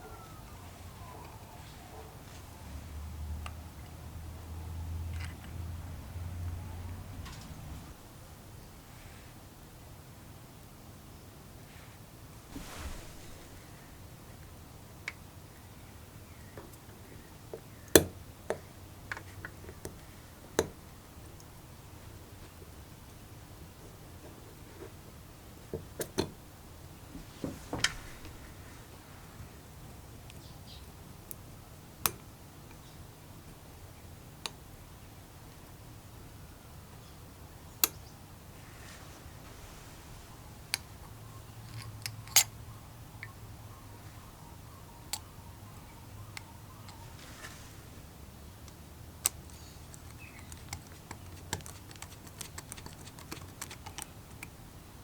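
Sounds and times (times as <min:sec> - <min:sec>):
small metal parts clicking: 0:49.2 - 0:54.5.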